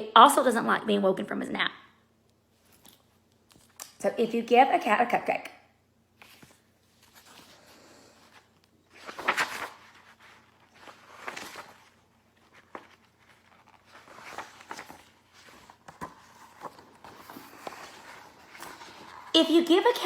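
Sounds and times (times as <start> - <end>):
rustling and handling noises: 2.3 - 4.0, 6.1 - 20.0.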